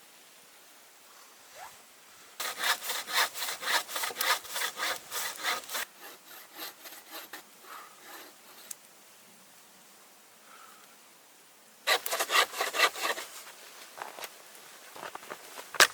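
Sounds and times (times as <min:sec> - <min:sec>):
hand saw cutting wood: 0:02.4 - 0:08.8, 0:11.9 - 0:13.4.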